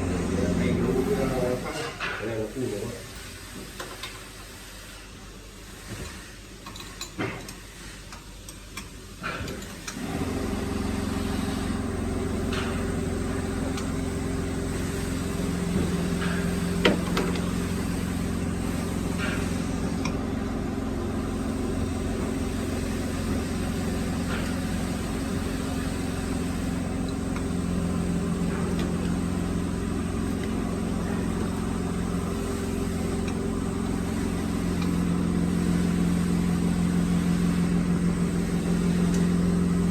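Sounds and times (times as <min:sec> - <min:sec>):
mortising machine motor hum: 0:00.0 - 0:01.8, 0:10.0 - 0:39.9.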